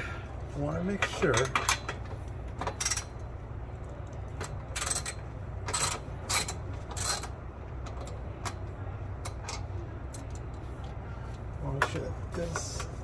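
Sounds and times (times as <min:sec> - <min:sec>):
metallic clicking and rattling: 0:00.8 - 0:11.0.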